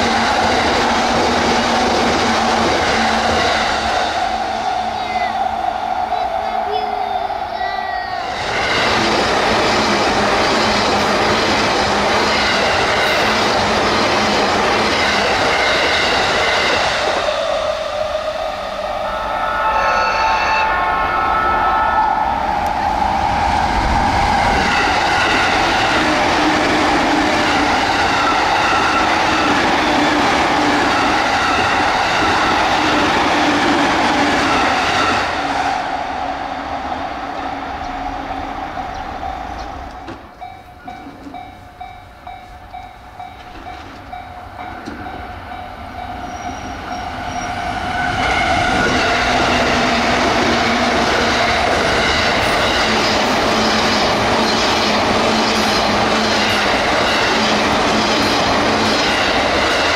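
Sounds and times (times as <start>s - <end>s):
electric train running on rails: 0.0s - 59.9s.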